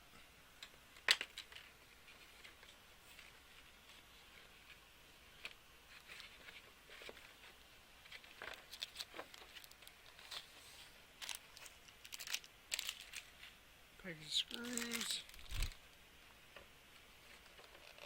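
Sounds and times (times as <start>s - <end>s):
plastic parts rustling and clicking: 0.6s - 4.0s, 5.4s - 10.6s, 11.2s - 13.5s, 14.4s - 15.8s, 17.2s - 18.0s.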